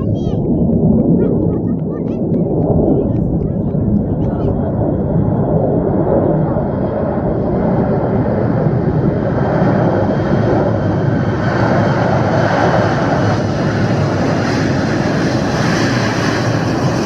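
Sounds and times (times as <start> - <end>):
airliner engines roaring: 0.0 - 17.0.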